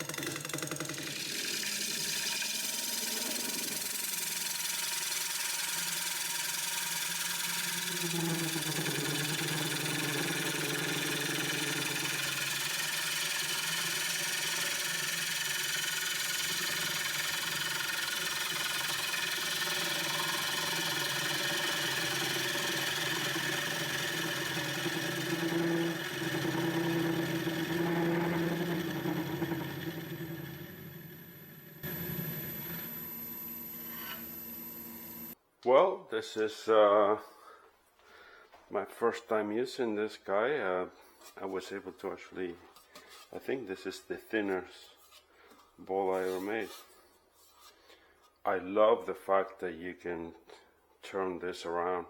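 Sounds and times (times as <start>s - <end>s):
wood lathe motor humming: 0.0s - 35.4s.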